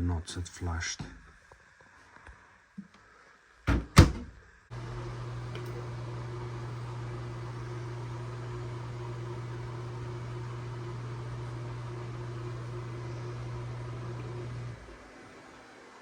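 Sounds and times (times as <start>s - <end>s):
small electric motor humming: 4.7s - 15.0s.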